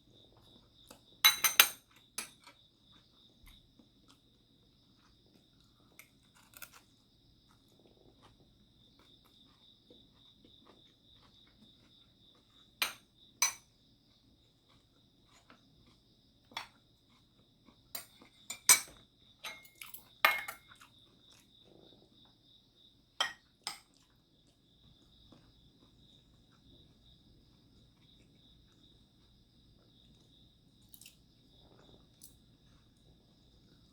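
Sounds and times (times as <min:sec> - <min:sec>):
cutlery clinking on plates: 0:01.3 - 0:02.6, 0:12.8 - 0:13.6, 0:18.0 - 0:20.8.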